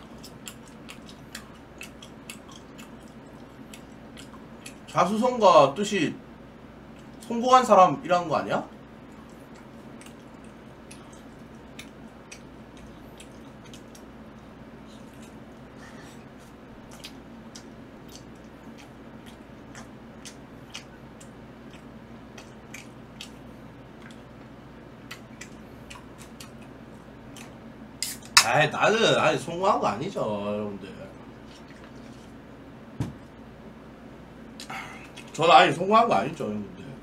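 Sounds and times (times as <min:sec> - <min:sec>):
chewing with wet smacks: 0:00.0 - 0:05.0, 0:06.9 - 0:07.3, 0:08.7 - 0:28.4, 0:31.2 - 0:32.4, 0:34.5 - 0:35.4.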